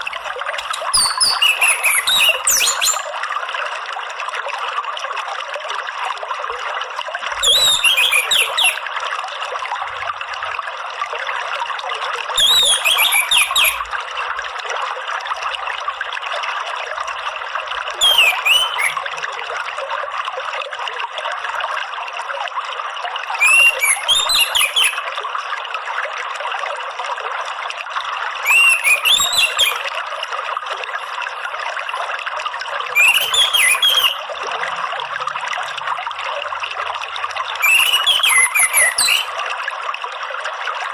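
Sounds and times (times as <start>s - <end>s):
thrush singing whistled phrases: 0.0s - 3.1s, 7.4s - 8.8s, 12.4s - 13.8s, 18.0s - 19.0s, 23.4s - 25.0s, 28.4s - 29.9s, 33.0s - 34.2s, 37.6s - 39.4s
trickling running water: 0.0s - 40.9s.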